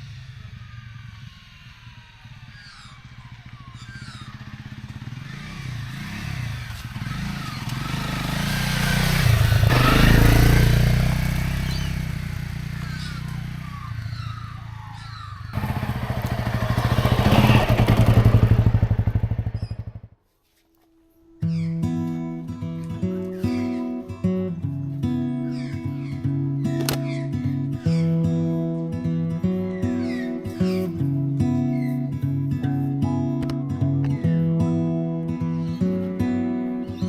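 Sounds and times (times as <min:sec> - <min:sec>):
dirt bike engine running: 0:00.0 - 0:20.2
music: 0:21.0 - 0:37.0.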